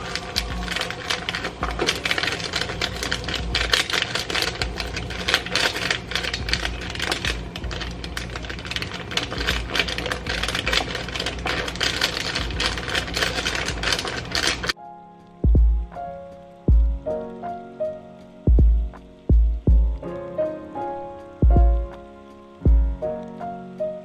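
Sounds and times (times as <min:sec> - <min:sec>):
fast keyboard typing: 0:00.0 - 0:14.8.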